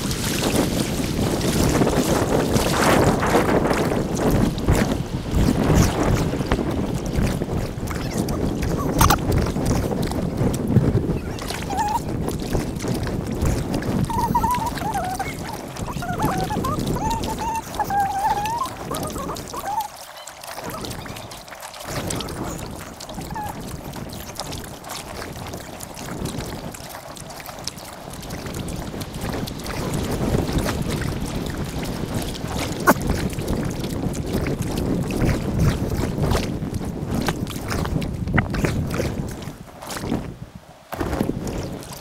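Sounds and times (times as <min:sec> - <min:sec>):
paddle splashes: 0:00.0 - 0:42.0
water wash: 0:00.0 - 0:42.0
wind on microphone: 0:00.0 - 0:42.0.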